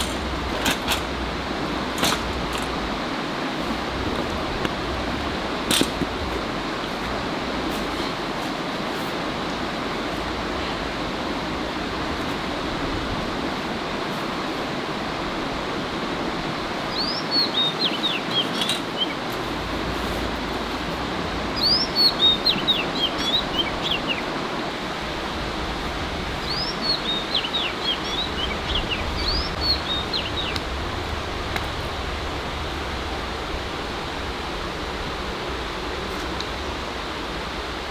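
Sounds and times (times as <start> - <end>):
steady rushing noise: 0.0 - 37.9
songbird singing: 16.4 - 33.4.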